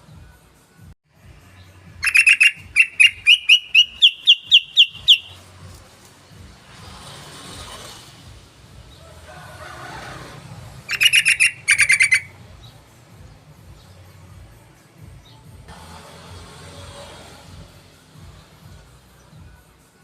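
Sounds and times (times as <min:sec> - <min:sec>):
bird sharp clipped notes: 0:02.0 - 0:05.4
bulbul chattering: 0:02.0 - 0:05.4, 0:10.9 - 0:12.4.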